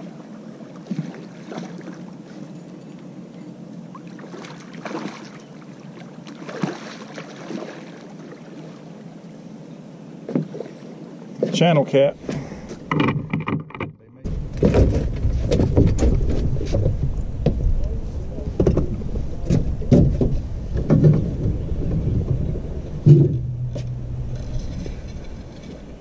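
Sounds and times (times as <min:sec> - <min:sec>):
knocks and clunks in boat: 0:10.2 - 0:26.0
steady low rumble: 0:14.0 - 0:26.0.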